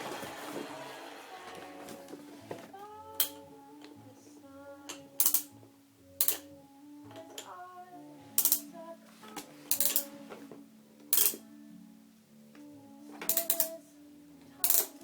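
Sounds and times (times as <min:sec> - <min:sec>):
plastic toy clacking: 0:05.2 - 0:05.5, 0:06.2 - 0:06.5, 0:08.4 - 0:08.7, 0:09.7 - 0:10.1, 0:11.1 - 0:11.4, 0:13.2 - 0:13.8, 0:14.6 - 0:15.0.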